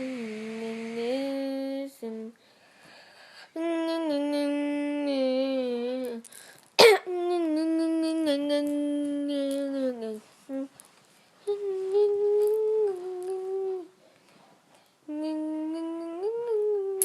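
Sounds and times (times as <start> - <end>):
loud sharp burst: 0.0 - 1.9
child humming: 0.0 - 2.0, 11.5 - 13.9, 15.1 - 17.0.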